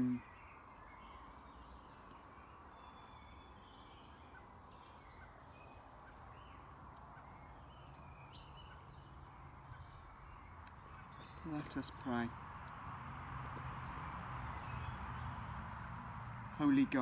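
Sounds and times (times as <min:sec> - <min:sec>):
bird chirps and calls: 0:00.0 - 0:12.8.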